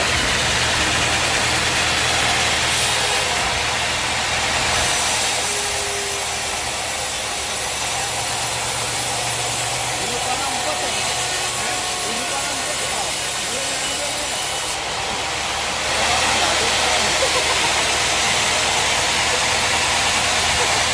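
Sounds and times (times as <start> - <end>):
engine running with hum: 0.0 - 12.1.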